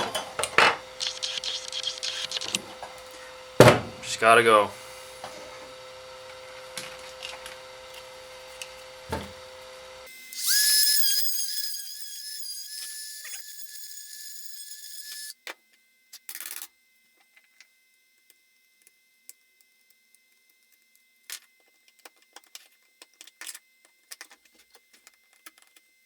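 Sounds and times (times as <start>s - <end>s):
rotary tool high-pitched whine: 0.4s - 4.3s, 10.0s - 15.4s.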